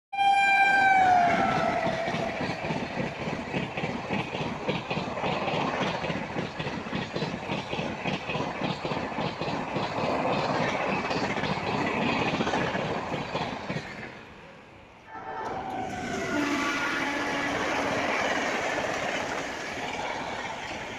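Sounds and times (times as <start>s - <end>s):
train horn: 0.2s - 2.5s, 15.1s - 18.6s
train wheels clattering over rail joints: 1.4s - 14.4s.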